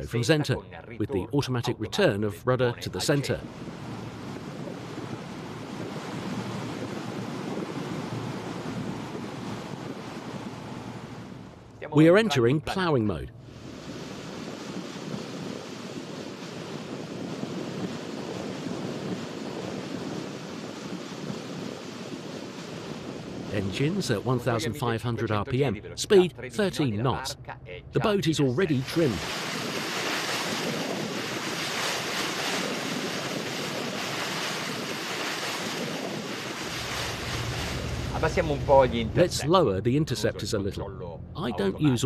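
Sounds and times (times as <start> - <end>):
water rushing past hull: 2.6 - 27.3, 27.9 - 39.6
wind on microphone: 3.2 - 11.7, 13.4 - 39.5.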